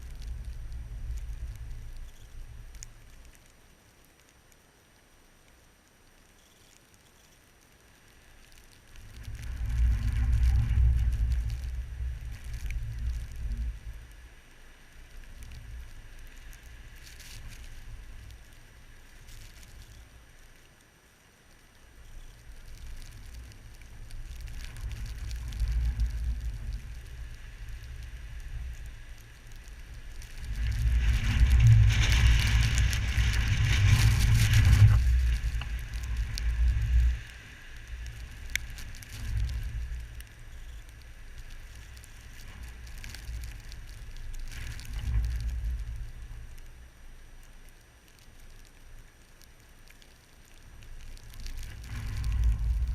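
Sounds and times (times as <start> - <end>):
rushing wind hiss: 0.0 - 4.0, 4.6 - 52.9
wind buffeting microphone: 9.0 - 14.4, 22.4 - 46.6, 51.2 - 52.9.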